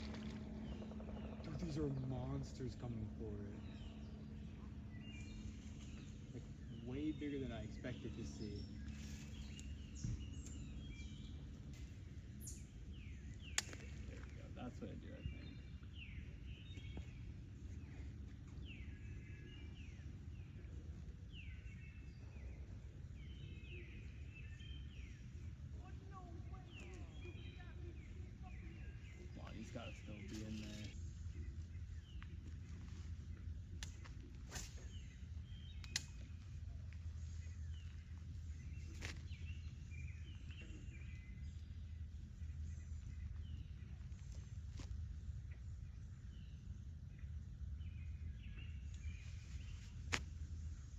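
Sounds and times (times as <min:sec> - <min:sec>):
small birds chirping: 0:00.0 - 0:50.9
songbird singing: 0:00.0 - 0:50.9
steady low rumble: 0:00.0 - 0:50.9.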